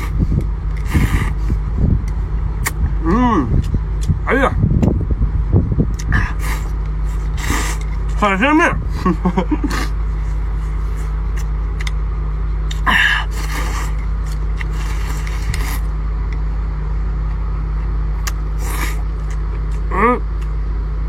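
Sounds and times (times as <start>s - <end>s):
low rumble: 0.0s - 21.0s
noodles being slurped: 6.0s - 8.2s, 12.7s - 15.9s.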